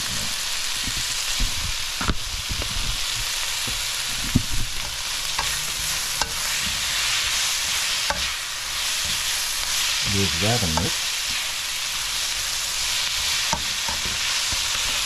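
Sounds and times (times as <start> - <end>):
vegetables sizzling in a skillet: 0.0 - 15.0
spatula scraping a pan: 3.8 - 11.6, 12.7 - 15.0.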